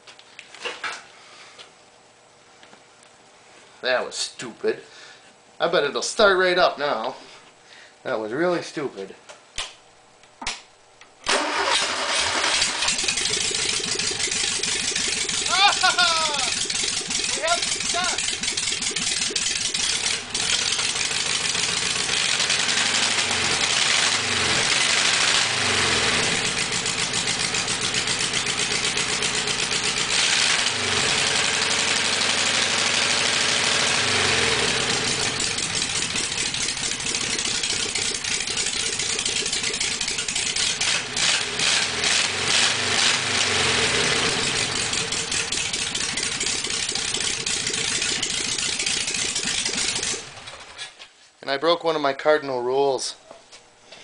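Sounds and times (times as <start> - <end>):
car engine revving: 11.3 - 50.5.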